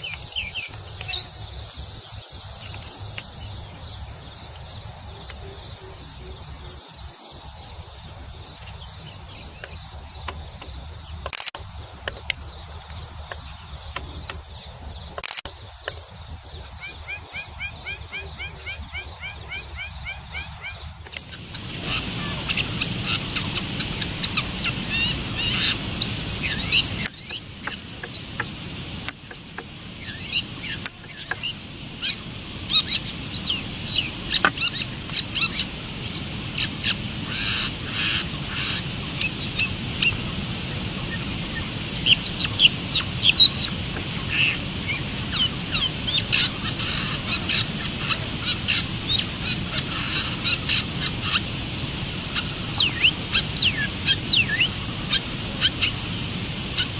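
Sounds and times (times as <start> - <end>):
bird chirping and trilling: 0.0 - 4.2, 16.9 - 40.2.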